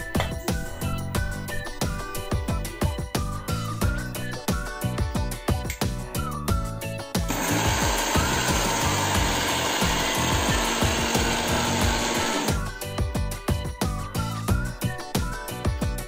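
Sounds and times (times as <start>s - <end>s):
background music: 0.0s - 16.0s
mixer grinder running: 7.3s - 12.6s.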